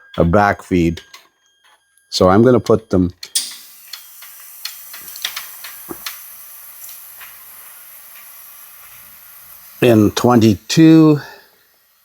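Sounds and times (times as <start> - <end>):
plastic fuses clicking: 3.2 - 7.4
steady hiss: 3.3 - 12.0.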